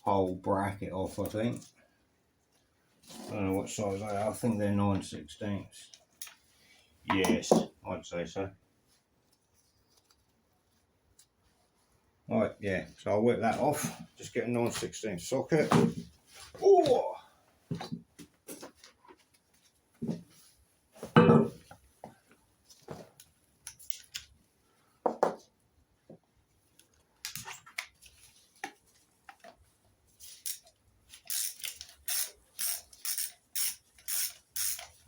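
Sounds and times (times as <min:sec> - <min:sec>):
socket ratchet clicking: 0:30.5 - 0:35.0.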